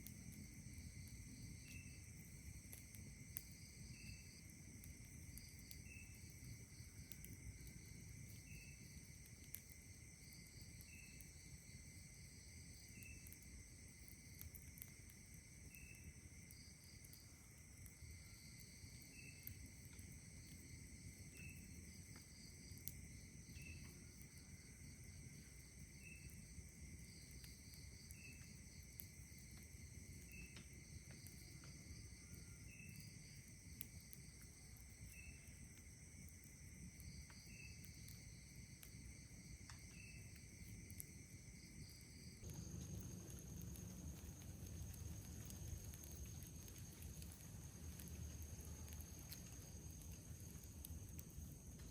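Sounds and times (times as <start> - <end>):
faint ticks: 0.0 - 4.1, 4.8 - 11.4, 12.8 - 20.7, 21.3 - 23.0, 27.2 - 41.2, 41.8 - 51.9
crickets trilling: 0.0 - 51.9
low background hiss: 0.0 - 51.9
short insect chirp: 3.3 - 4.4, 5.3 - 9.0, 10.4 - 11.6, 15.6 - 19.8, 21.3 - 22.5, 25.9 - 29.4, 30.0 - 51.9.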